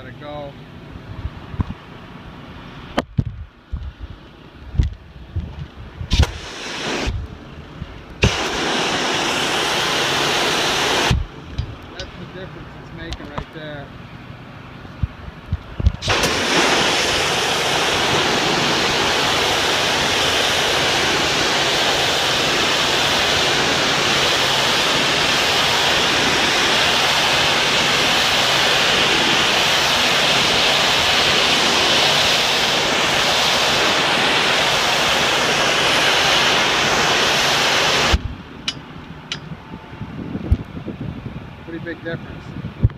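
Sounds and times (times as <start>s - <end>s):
pressure washer jet hissing: 6.1s - 7.2s, 8.2s - 11.3s, 16.0s - 38.2s.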